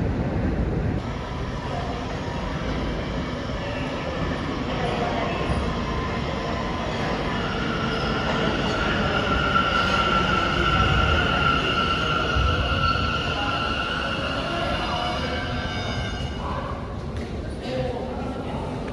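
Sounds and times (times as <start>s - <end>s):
subway train rumble: 0.0s - 18.9s.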